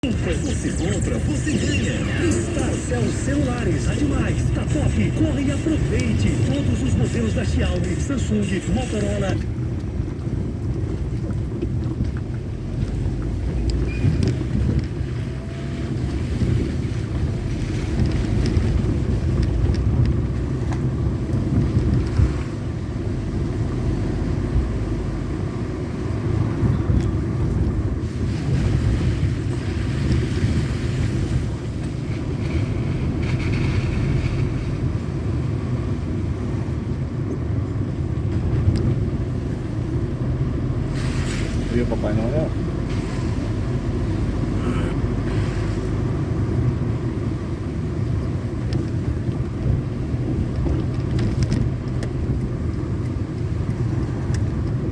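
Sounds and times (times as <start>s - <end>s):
moving vehicle rumble: 0.0s - 54.9s
wind buffeting microphone: 0.0s - 54.9s.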